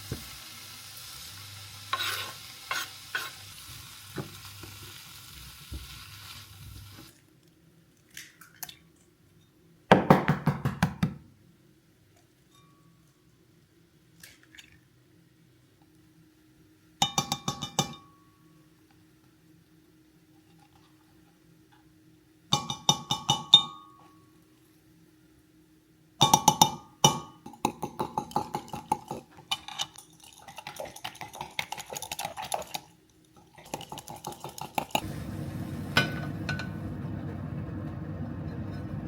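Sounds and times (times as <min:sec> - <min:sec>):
kitchenware clinking and clattering: 0:26.2 - 0:35.2, 0:35.8 - 0:37.0.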